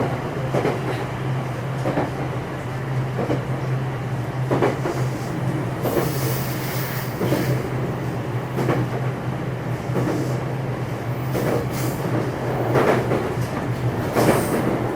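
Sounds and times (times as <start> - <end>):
wheels clacking over rail joints: 11.3 - 14.9.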